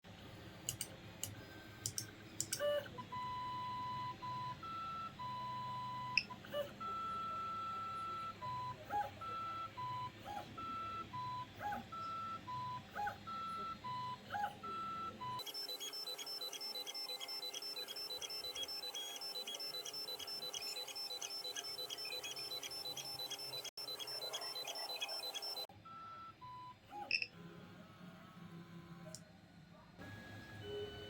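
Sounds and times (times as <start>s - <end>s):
fast repeating musical pattern: 15.4s - 25.7s
stepper motors whining: 15.4s - 25.7s.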